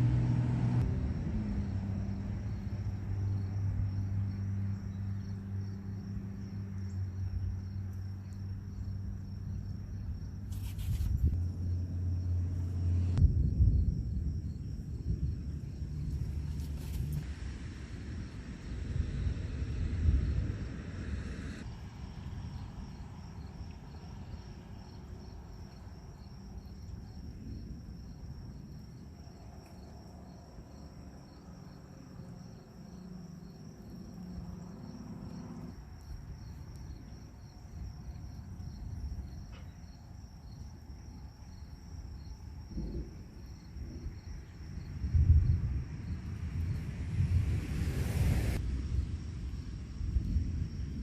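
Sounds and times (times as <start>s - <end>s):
low background rumble: 0.0s - 51.0s
insects trilling: 21.6s - 46.9s.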